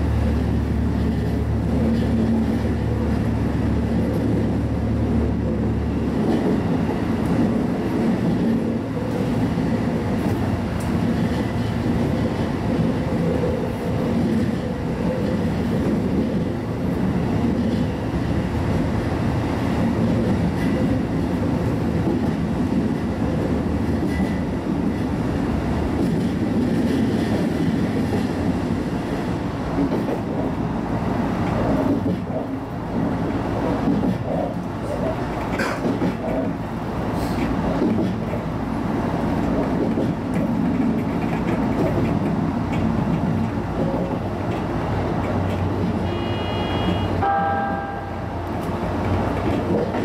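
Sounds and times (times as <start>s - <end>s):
rail joint clatter: 0.0s - 4.7s, 31.3s - 50.0s
train wheels rumbling on rail: 0.0s - 50.0s.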